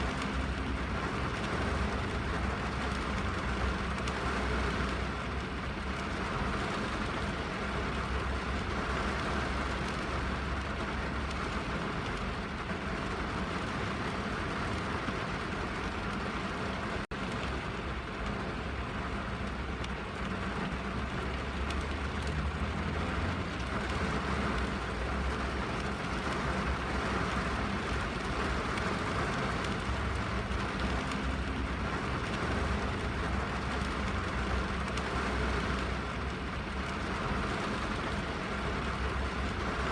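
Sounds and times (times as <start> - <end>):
rain drumming on car roof: 0.0 - 39.9.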